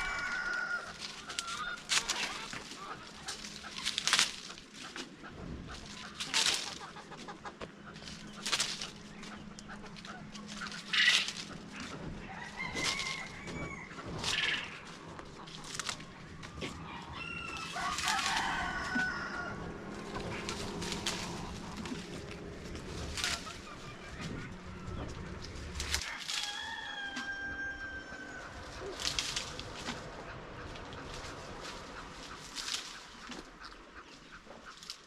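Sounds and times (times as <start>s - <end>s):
rooster crowing: 0.0s - 2.6s, 11.8s - 14.8s, 16.5s - 22.1s, 24.2s - 29.4s
chickens clucking and squawking: 0.0s - 35.0s
steady low hum: 0.0s - 35.0s.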